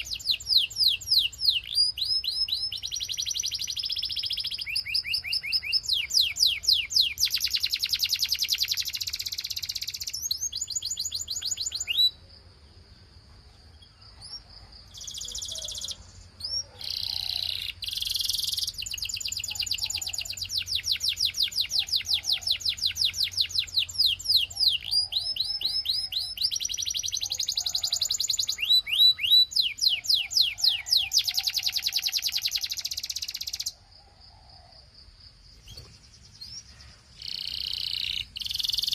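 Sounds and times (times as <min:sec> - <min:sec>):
canary singing trills: 0:00.0 - 0:12.6, 0:13.5 - 0:34.8, 0:35.5 - 0:38.9.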